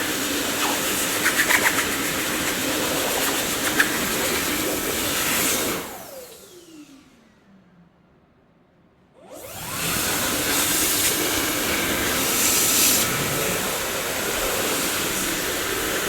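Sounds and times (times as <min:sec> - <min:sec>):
vacuum cleaner running: 0:00.0 - 0:07.4, 0:09.2 - 0:16.0
vacuum cleaner rattles: 0:00.4 - 0:05.5.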